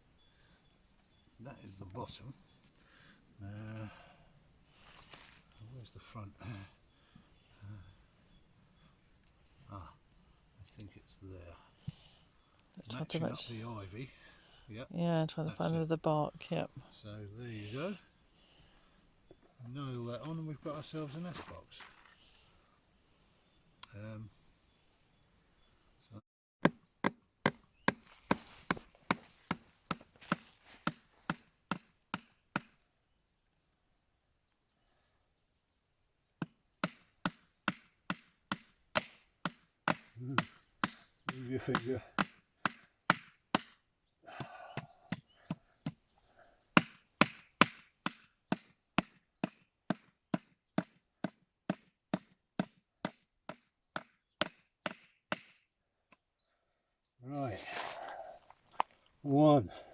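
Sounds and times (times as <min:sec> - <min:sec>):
hammer driving a nail into wood: 0:26.6 - 0:32.8, 0:36.4 - 0:43.8, 0:46.8 - 0:55.6.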